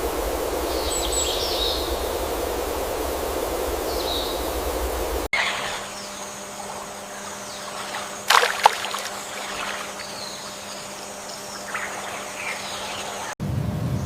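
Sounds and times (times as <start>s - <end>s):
loud water splash: 7.8s - 10.4s.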